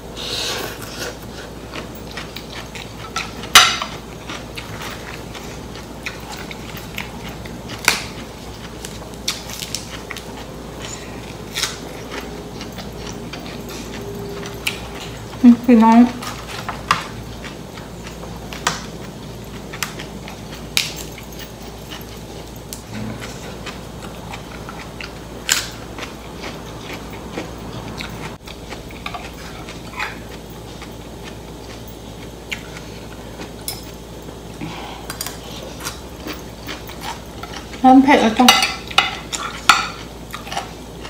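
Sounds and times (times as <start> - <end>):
person chewing food: 0.2 - 15.4, 16.2 - 37.8, 38.8 - 41.0.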